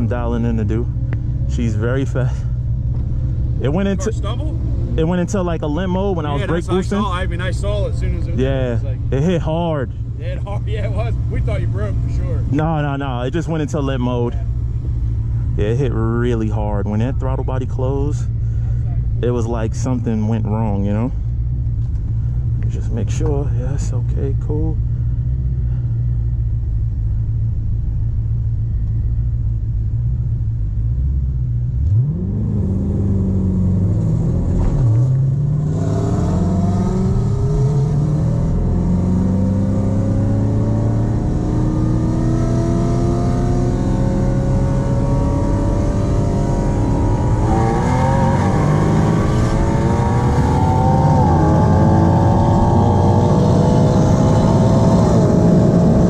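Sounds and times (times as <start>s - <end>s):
drag car engine: 31.8s - 56.0s.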